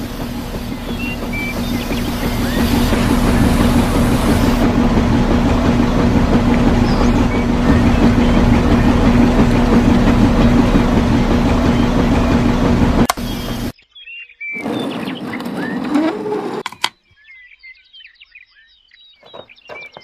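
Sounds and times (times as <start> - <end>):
small motor humming and rattling: 0.0 - 13.8.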